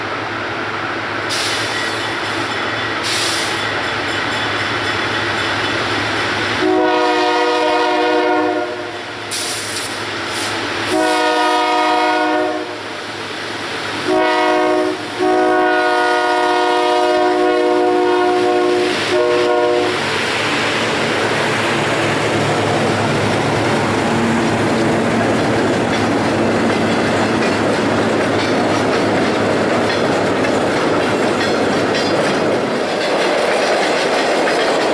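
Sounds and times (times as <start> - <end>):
diesel locomotive rumbling: 0.0 - 34.9
train wheels clattering on rails: 1.0 - 8.3, 13.0 - 34.9
train air horn blasts: 6.6 - 9.8, 10.9 - 13.0, 14.0 - 20.1.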